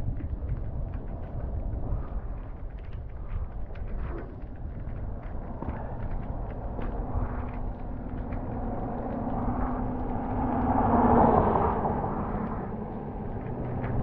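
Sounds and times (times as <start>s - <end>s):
wind rumble on microphone: 0.0s - 14.0s
motor vehicle passing: 5.7s - 14.0s.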